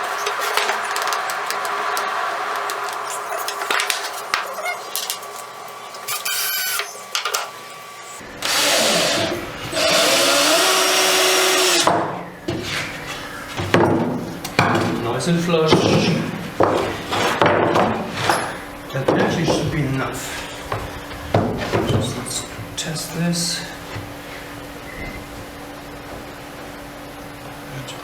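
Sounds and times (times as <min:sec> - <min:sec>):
power drill drilling into wood: 0:06.1 - 0:06.9, 0:08.4 - 0:11.9.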